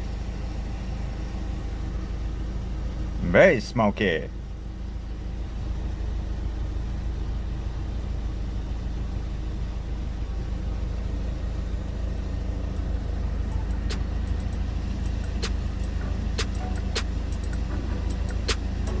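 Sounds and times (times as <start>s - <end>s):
car engine running: 0.0s - 19.0s
sharp clicks: 13.6s - 19.0s.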